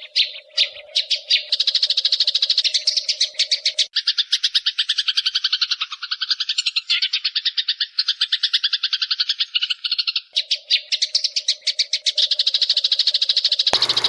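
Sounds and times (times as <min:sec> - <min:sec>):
sparrows chattering: 0:00.0 - 0:14.0
faint steady hum: 0:13.8 - 0:14.0.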